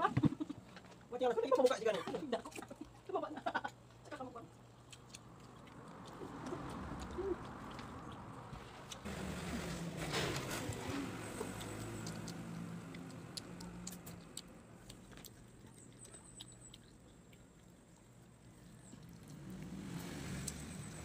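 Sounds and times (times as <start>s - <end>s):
faint low hum: 2.0s - 21.0s
crunchy chewing and biting: 4.5s - 21.0s.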